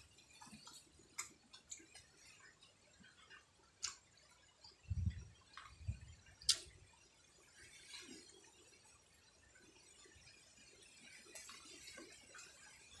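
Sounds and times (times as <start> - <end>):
chewing mouth clicks and smacks: 0.4 - 4.4, 5.5 - 6.7.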